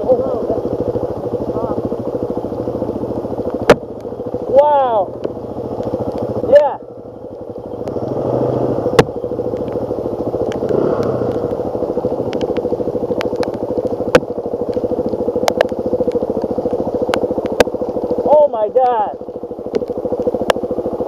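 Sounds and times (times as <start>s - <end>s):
dirt bike engine running: 0.0s - 21.0s
sharp clicks: 7.2s - 18.2s.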